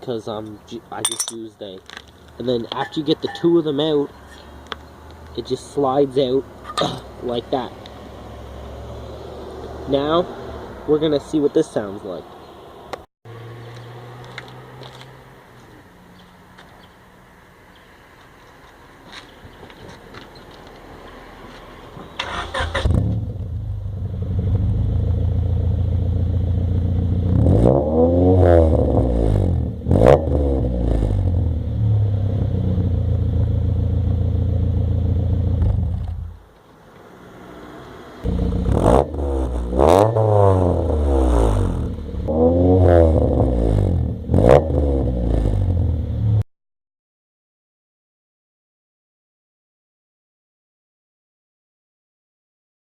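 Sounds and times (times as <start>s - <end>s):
car engine idling and revving: 12.9s - 16.7s, 21.9s - 46.4s.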